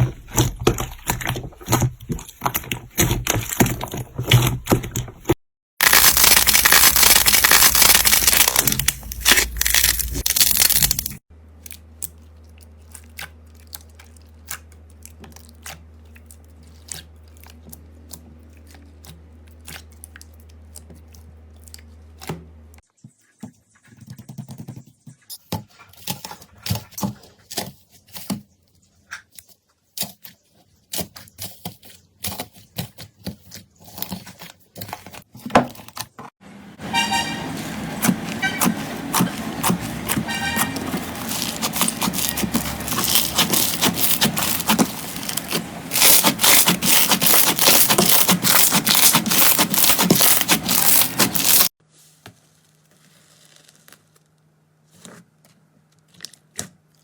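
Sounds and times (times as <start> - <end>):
dense crackling: 5.8 - 11.2, 38.0 - 51.7.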